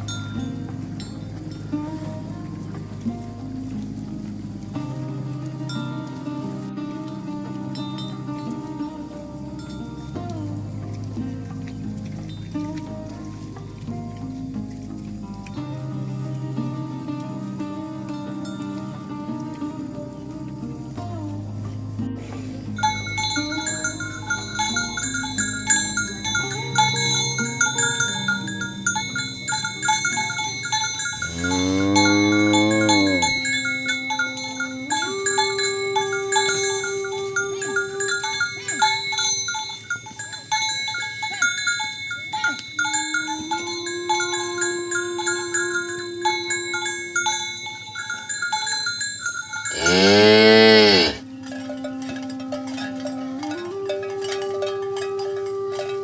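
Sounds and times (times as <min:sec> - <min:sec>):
ringing bell-like tones: 0:00.0 - 0:02.4, 0:22.7 - 0:56.0
cows mooing: 0:29.8 - 0:38.3, 0:49.6 - 0:51.3.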